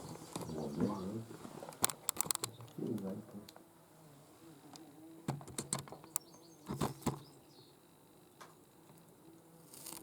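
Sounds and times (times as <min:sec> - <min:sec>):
faint clicks and knocks: 0:01.7 - 0:03.6.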